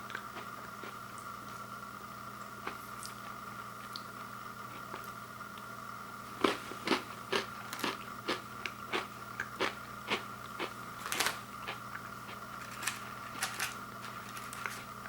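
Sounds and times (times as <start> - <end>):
faint hum: 0.0 - 15.0
person chewing crunchy cookie: 6.3 - 15.0.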